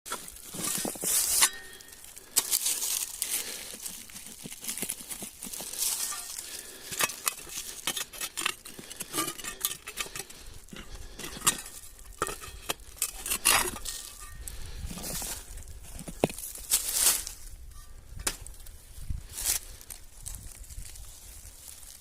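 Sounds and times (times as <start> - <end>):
objects scraping and rustling: 0.1 - 17.9.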